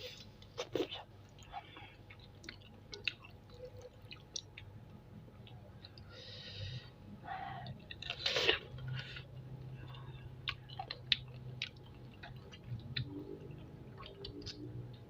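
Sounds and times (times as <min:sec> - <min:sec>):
chewing and biting: 0:07.8 - 0:15.0.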